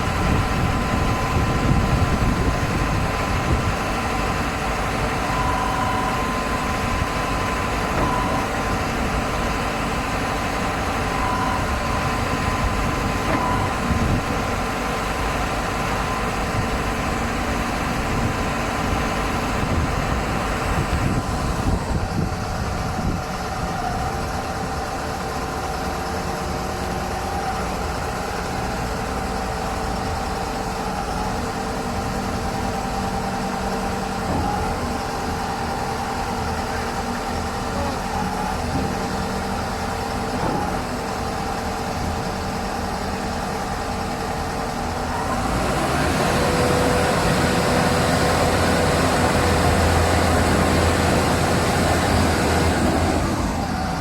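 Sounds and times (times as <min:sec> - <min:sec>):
concrete mixer engine running: 0:00.0 - 0:54.0.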